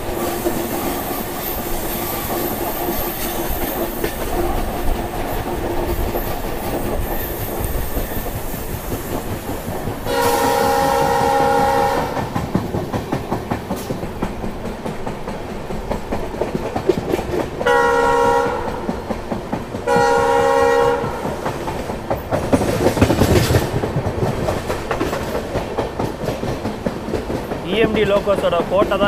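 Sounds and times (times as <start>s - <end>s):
train wheel clatter: 0.0s - 29.0s
locomotive air horn blasts: 10.1s - 12.2s, 17.7s - 18.7s, 19.9s - 21.2s.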